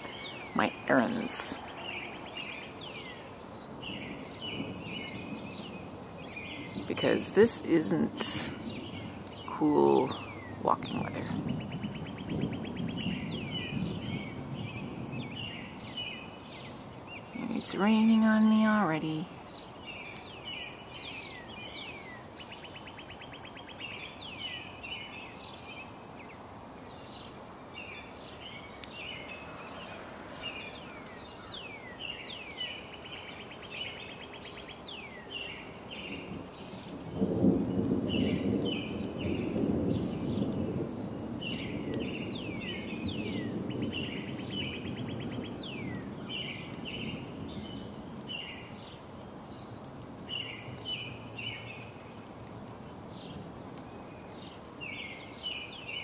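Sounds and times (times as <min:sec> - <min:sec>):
birds chirping and trilling: 0:00.0 - 0:56.0
rumble of thunder: 0:04.0 - 0:07.1, 0:07.9 - 0:16.2, 0:36.0 - 0:48.9.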